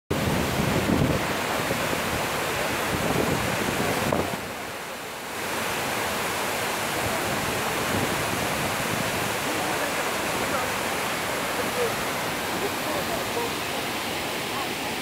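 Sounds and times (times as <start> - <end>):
wind buffeting microphone: 0.1 - 4.6, 6.9 - 13.7
waterfall rushing and splashing: 0.1 - 15.0.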